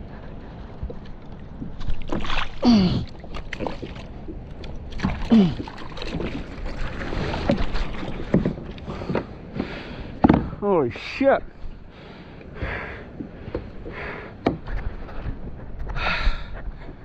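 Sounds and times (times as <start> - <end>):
water splashing: 1.3 - 10.0
man groaning: 2.6 - 3.1
knocks on a kayak: 10.2 - 10.6.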